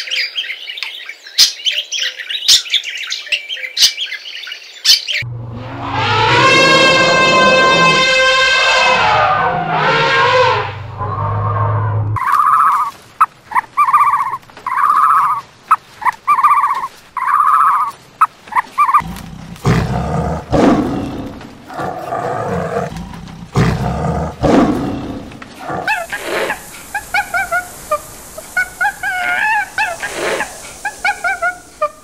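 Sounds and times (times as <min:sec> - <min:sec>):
tiger roaring: 0:05.2 - 0:12.2, 0:19.0 - 0:27.8
high wavering squeaky calls: 0:11.0 - 0:19.0, 0:25.9 - 0:32.0
growling: 0:19.0 - 0:27.6.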